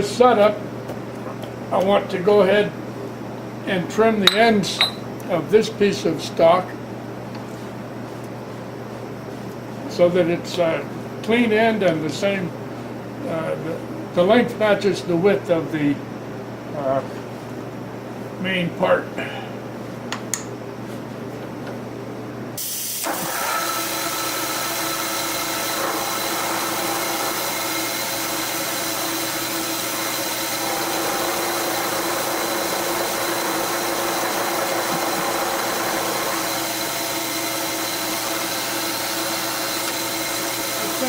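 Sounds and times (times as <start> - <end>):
machine tool hissing and whining: 22.6 - 41.0.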